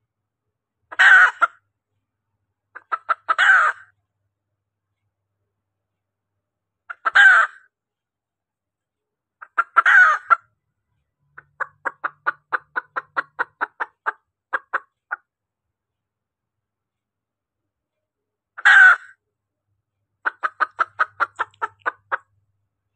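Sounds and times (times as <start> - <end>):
hen calling: 0.9 - 1.6, 2.8 - 3.9, 6.9 - 7.6, 9.4 - 10.4, 11.4 - 15.2, 18.6 - 19.2, 20.2 - 22.3
hen clucking: 0.9 - 1.6, 2.8 - 3.9, 6.9 - 7.6, 9.4 - 10.5, 11.4 - 15.3, 20.2 - 22.4.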